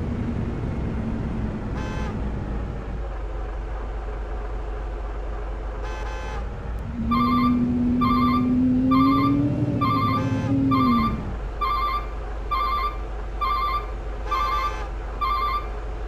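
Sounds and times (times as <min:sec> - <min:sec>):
truck engine running: 0:00.0 - 0:16.0
long low horn blast: 0:01.6 - 0:02.4, 0:05.8 - 0:11.4
electronic chirping alarm: 0:07.1 - 0:15.7.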